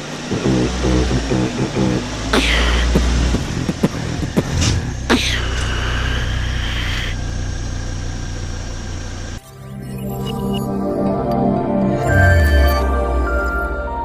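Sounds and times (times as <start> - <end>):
car engine at low revs: 0.0 - 9.4
music: 9.4 - 14.0
high squeal: 12.0 - 13.6.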